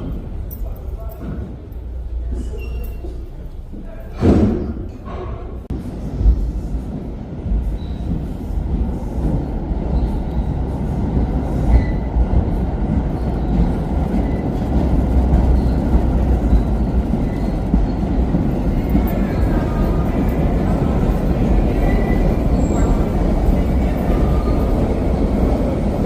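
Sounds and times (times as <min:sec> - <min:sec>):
train rumbling along track: 0:00.0 - 0:26.0
faint wheel squeals: 0:02.2 - 0:03.3, 0:07.7 - 0:08.5, 0:15.4 - 0:18.2.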